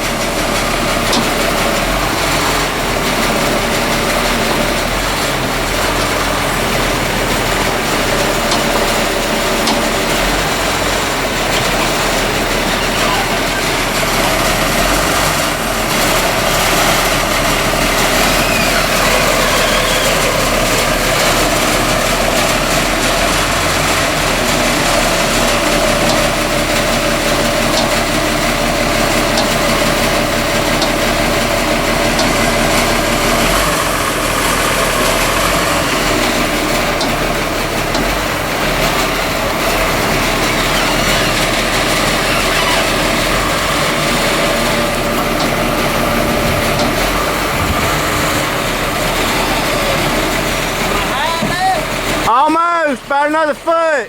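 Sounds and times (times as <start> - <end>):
machinery hum: 0.0 - 53.8
sawmill engine drone: 0.0 - 54.0.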